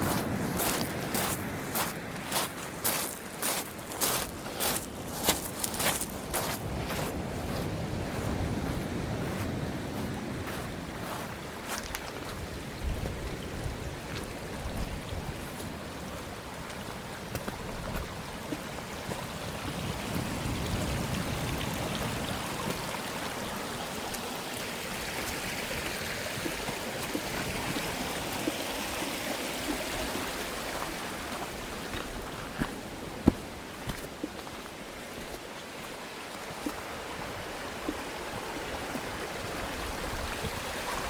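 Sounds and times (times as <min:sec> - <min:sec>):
stream water rushing: 0:00.0 - 0:41.0.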